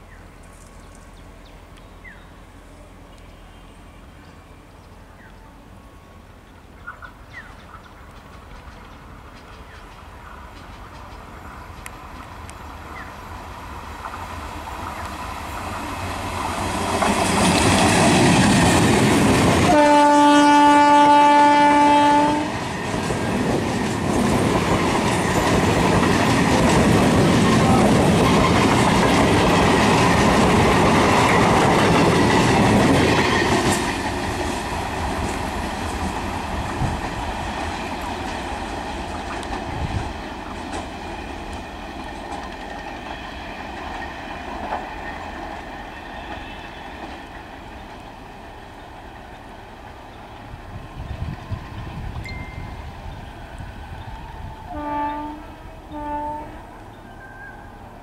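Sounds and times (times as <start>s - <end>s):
train rumbling past: 0.0s - 58.0s
train horn blast: 19.6s - 22.6s, 54.6s - 56.8s.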